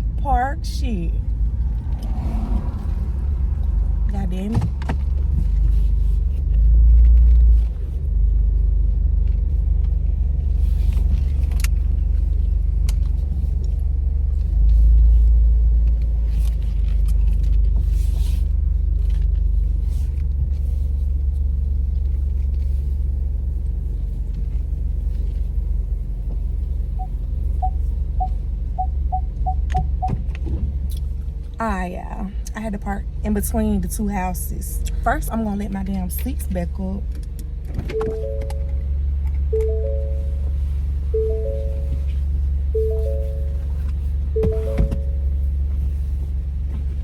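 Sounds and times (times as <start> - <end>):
car engine rumble: 0.0 - 47.0
parking sensor beeping: 26.9 - 30.3, 37.8 - 45.4
clicks: 37.9 - 38.9, 39.6 - 40.2.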